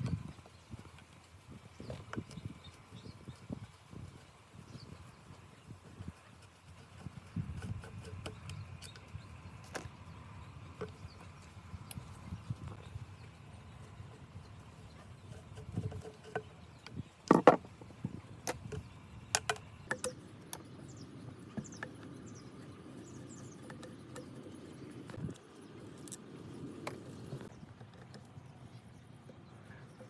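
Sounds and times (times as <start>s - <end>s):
steady rubbing noise: 0.0s - 19.1s
hand tools clicking and knocking: 15.2s - 17.7s, 18.4s - 20.2s.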